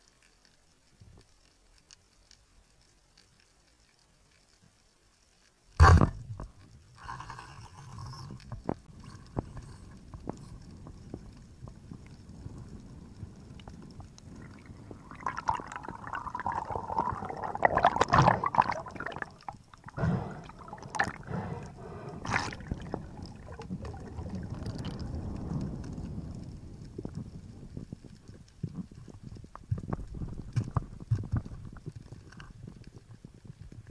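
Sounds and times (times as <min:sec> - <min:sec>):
underwater background noise: 0:00.0 - 0:33.9
rushing gurgling water: 0:14.3 - 0:25.7
underwater clicks and knocks: 0:22.3 - 0:33.9.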